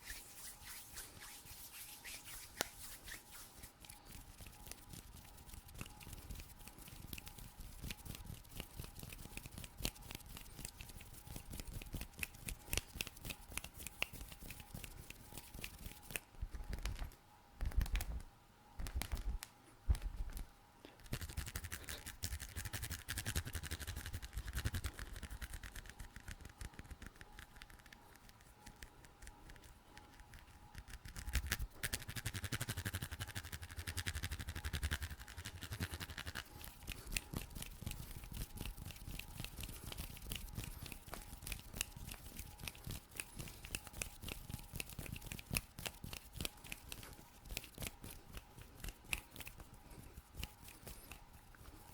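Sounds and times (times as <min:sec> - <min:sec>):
hands rubbing and scratching: 0:00.0 - 0:18.2, 0:18.8 - 0:51.9
fast tapping and scratching clicks: 0:04.0 - 0:51.9.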